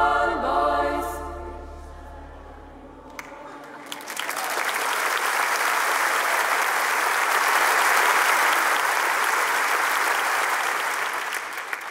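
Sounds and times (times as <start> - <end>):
audience applauding: 3.1 - 11.9.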